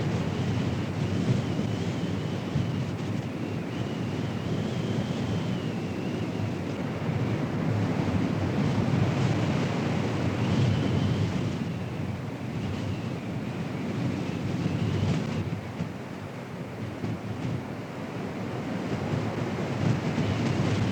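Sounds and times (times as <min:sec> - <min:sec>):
strong wind buffeting microphone: 0:16.8 - 0:20.9.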